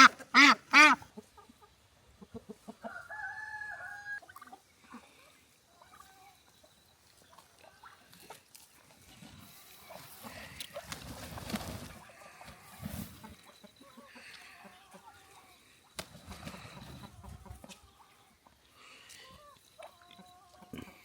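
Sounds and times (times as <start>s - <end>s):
poultry calling: 0.0s - 1.2s, 11.7s - 21.0s.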